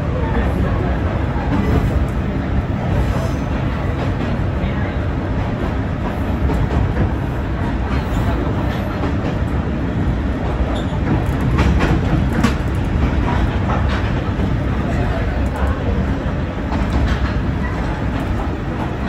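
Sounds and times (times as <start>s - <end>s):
diesel railcar rumbling: 0.0s - 19.0s
track clacks: 0.7s - 19.0s.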